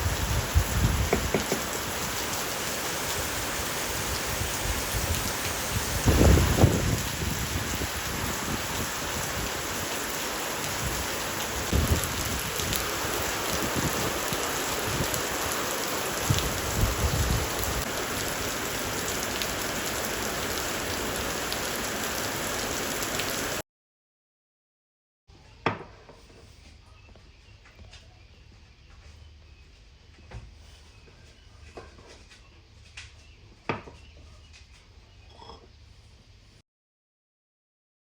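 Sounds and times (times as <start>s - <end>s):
heavy rainfall: 0.0s - 23.6s.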